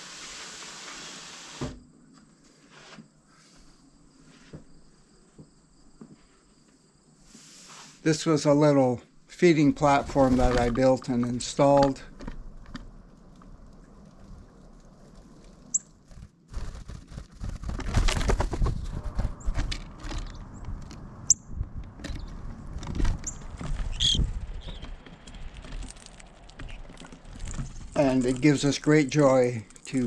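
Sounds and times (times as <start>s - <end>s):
high bird chirps: 23.2s - 24.9s.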